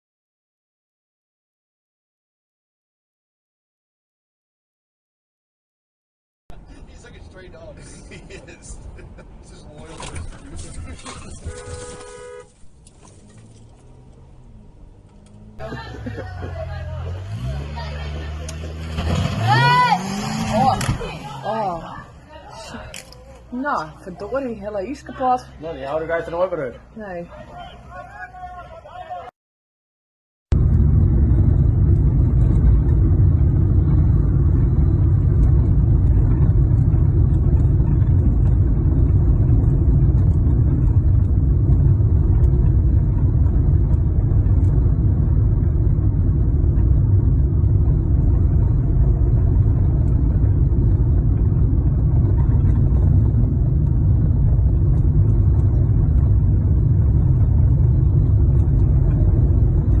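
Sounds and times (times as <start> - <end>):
car driving rumble: 6.5 - 29.3, 30.5 - 60.0.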